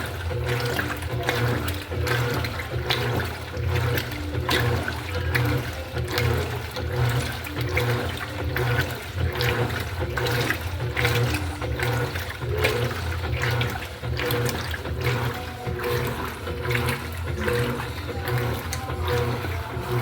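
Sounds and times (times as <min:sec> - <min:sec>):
washing machine motor hum: 0:00.0 - 0:20.0
water churning and sloshing: 0:00.0 - 0:20.0.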